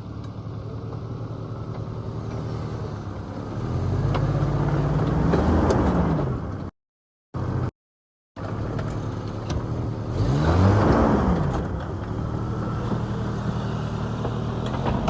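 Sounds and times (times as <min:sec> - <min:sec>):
car engine revving: 0:09.6 - 0:15.0.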